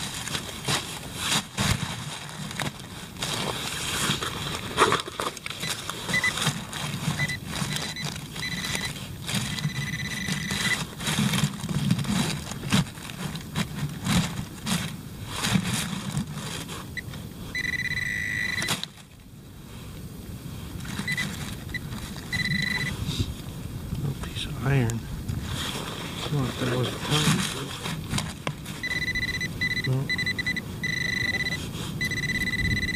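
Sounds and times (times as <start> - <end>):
pinpointer high tone: 8.0 - 8.9, 9.5 - 10.8, 17.6 - 18.8, 22.3 - 22.9, 28.8 - 32.9.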